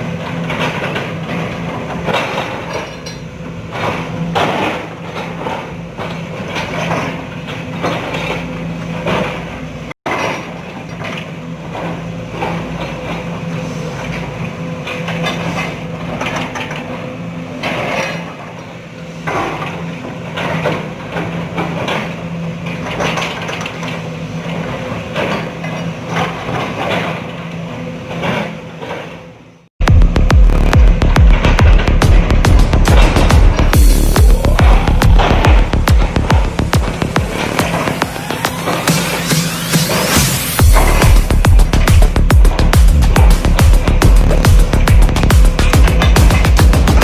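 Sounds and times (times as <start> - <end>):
knocks and clanks: 0.0 - 13.3, 29.8 - 47.0
excavator diesel engine running: 29.8 - 47.0.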